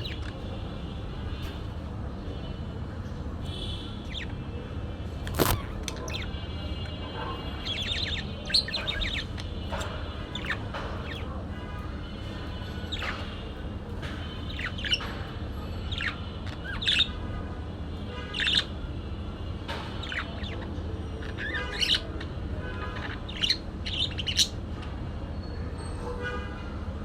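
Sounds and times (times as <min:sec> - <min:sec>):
bird chirping calls: 0:00.0 - 0:01.7, 0:03.5 - 0:17.2, 0:18.3 - 0:18.8, 0:19.7 - 0:25.0.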